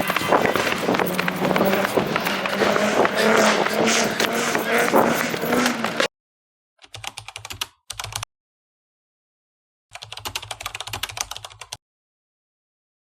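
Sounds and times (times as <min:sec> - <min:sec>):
keyboard typing clicks: 0:06.8 - 0:08.2.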